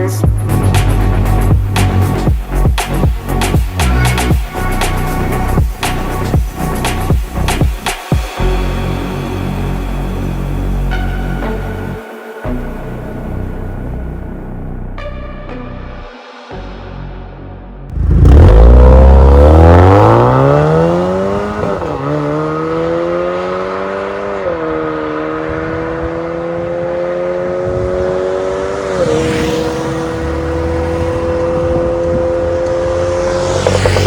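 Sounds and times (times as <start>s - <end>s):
car accelerating with gear shifts: 17.9s - 34.0s.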